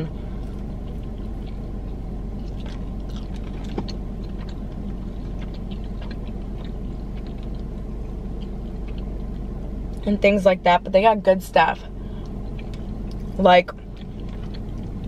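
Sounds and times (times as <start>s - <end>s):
low hum in car cabin: 0.0s - 15.0s
person chewing: 0.1s - 10.0s, 12.1s - 15.0s.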